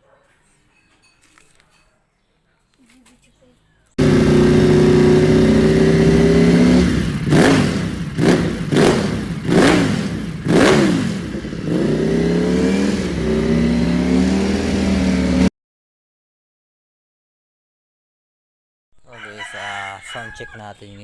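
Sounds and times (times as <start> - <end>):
scooter engine idling and revving: 4.0 - 15.5.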